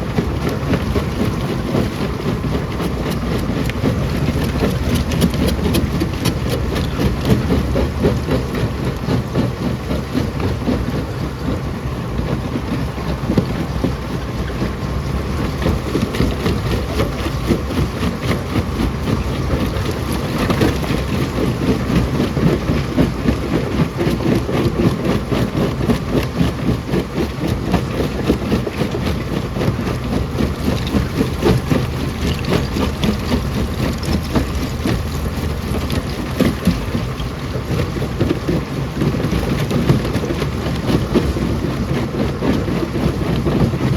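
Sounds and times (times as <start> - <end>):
heavy machine rumble: 0.0 - 43.9.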